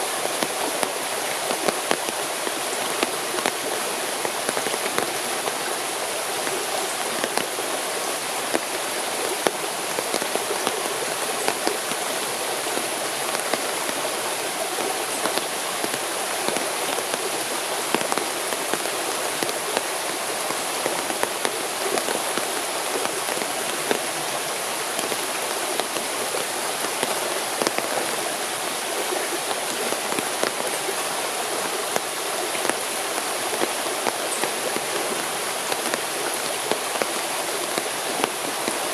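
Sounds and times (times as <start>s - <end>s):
steady rain: 0.0s - 38.9s
sharp raindrop ticks: 8.4s - 38.9s.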